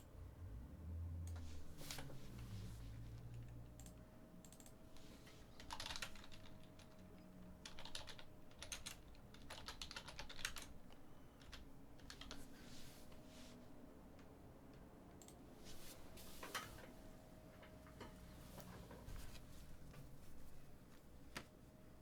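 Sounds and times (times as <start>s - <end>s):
keyboard typing: 3.2s - 12.5s.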